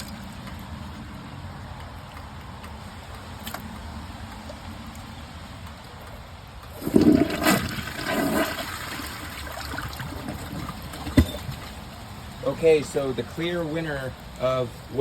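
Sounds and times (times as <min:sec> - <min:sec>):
toilet flushing: 0:06.7 - 0:11.8.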